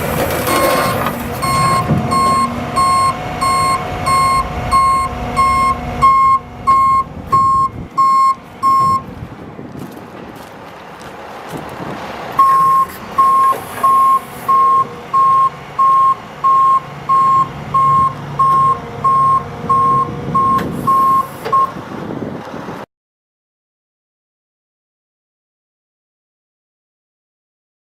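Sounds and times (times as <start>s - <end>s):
diesel engine running: 0.0s - 22.8s
truck backup alarm beeping: 0.2s - 9.1s, 12.4s - 21.8s.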